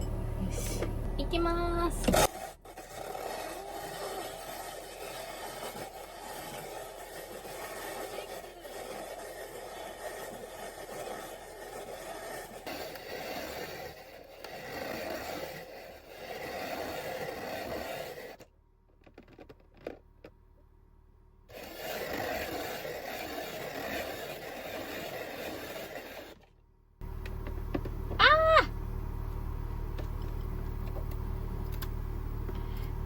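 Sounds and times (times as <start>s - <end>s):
steady low hum: 0.0s - 3.3s, 26.8s - 33.0s
ice shaving scraping grind: 2.2s - 18.4s, 21.5s - 26.4s
clicks: 29.3s - 33.0s.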